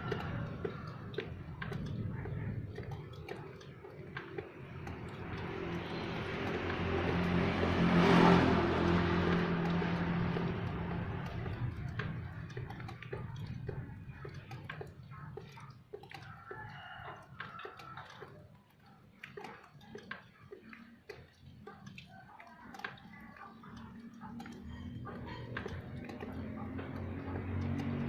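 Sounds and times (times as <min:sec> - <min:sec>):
vehicle passing by: 0:00.0 - 0:15.3, 0:22.4 - 0:28.0
water dripping: 0:00.0 - 0:28.0.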